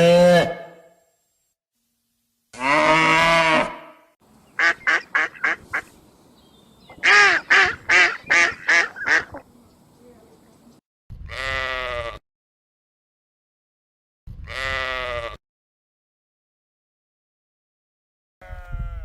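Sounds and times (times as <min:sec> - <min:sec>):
waterfowl honking calls: 0:04.5 - 0:06.0, 0:06.8 - 0:09.6.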